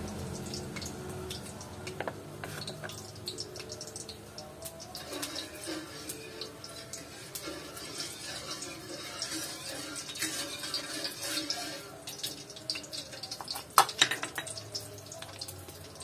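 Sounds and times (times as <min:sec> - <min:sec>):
water dripping: 0:00.0 - 0:08.1, 0:12.0 - 0:16.0.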